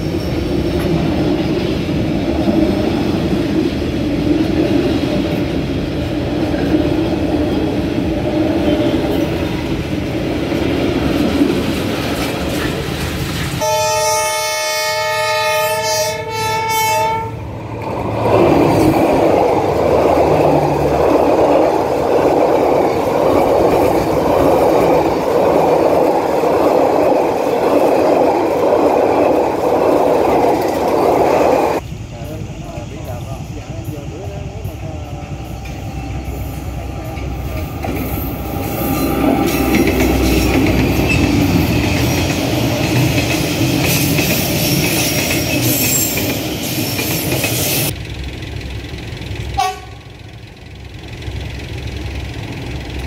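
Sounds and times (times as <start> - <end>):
train coaches rolling past: 0.0 - 53.0
locomotive horn: 13.6 - 17.5, 49.6 - 50.2.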